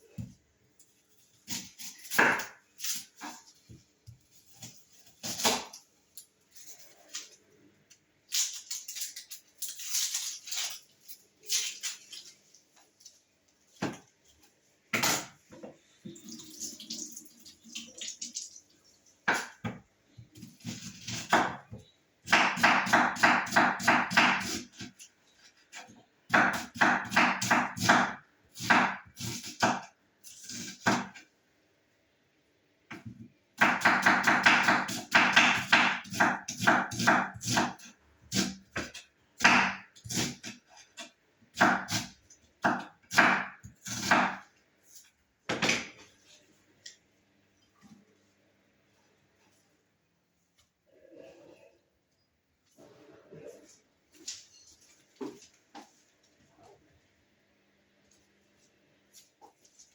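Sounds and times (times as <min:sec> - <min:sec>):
knife chopping on cutting board: 0:01.5 - 0:03.3, 0:22.3 - 0:25.0, 0:26.3 - 0:29.9, 0:32.9 - 0:40.6, 0:41.6 - 0:44.4.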